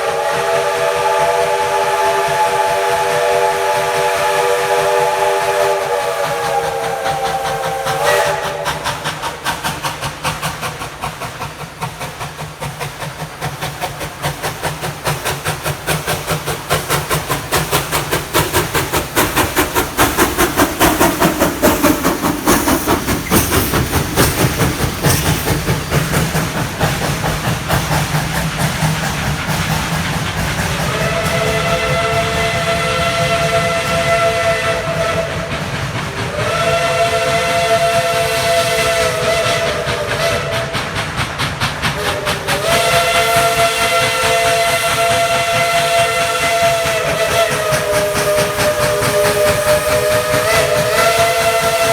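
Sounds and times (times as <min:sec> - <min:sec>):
steam locomotive whistle: 0:00.0 - 0:09.4, 0:29.9 - 0:51.9
locomotive exhaust chuffing: 0:00.0 - 0:51.9.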